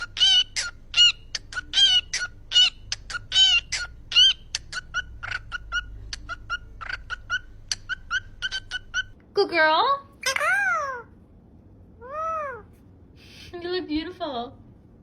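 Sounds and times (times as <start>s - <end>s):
parakeet squawking: 0.0s - 9.2s, 10.2s - 11.1s.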